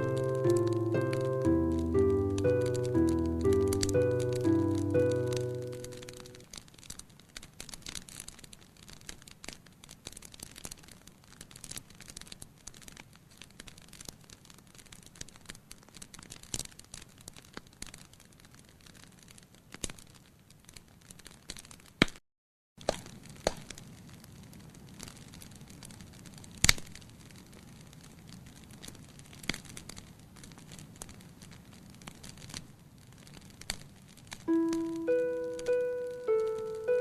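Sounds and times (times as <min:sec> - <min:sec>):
music: 0:00.0 - 0:06.5, 0:34.5 - 0:37.0
wood fire crackling: 0:00.0 - 0:22.2, 0:22.8 - 0:37.0.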